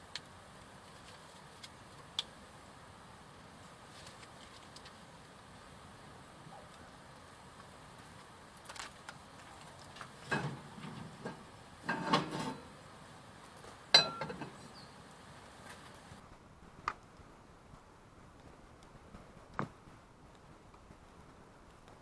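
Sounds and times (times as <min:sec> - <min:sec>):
cookware and utensils clattering: 0:10.2 - 0:12.8, 0:14.0 - 0:14.7.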